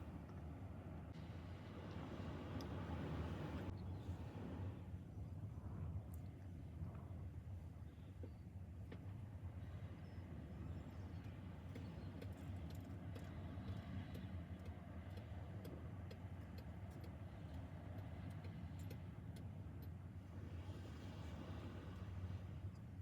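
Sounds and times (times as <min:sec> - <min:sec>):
light ticking clicks: 0:11.2 - 0:20.0.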